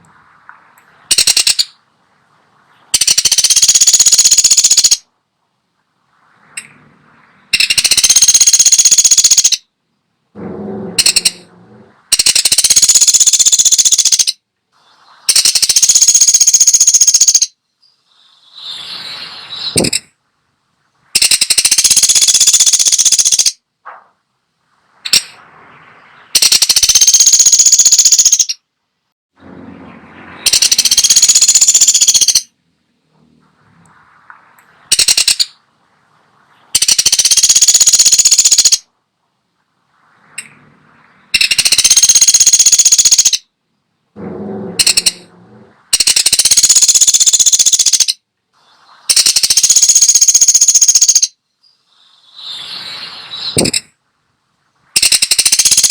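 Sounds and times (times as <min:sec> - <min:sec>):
woodpecker buzzing trills: 0:03.0 - 0:05.0, 0:07.4 - 0:09.6, 0:10.4 - 0:14.4, 0:15.3 - 0:18.7, 0:21.2 - 0:23.6, 0:26.0 - 0:28.6, 0:29.4 - 0:32.5, 0:36.8 - 0:38.8, 0:41.3 - 0:43.4, 0:44.2 - 0:48.2, 0:49.1 - 0:51.3.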